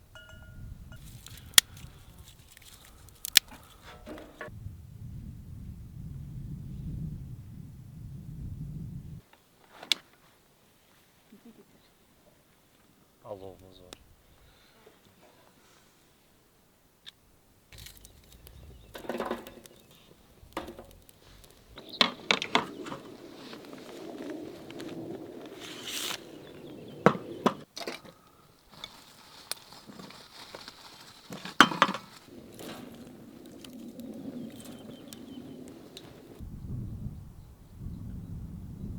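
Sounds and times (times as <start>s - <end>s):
crinkling: 1.0s - 4.5s, 17.7s - 26.5s, 27.7s - 36.4s
objects knocking and clinking: 17.8s - 21.8s.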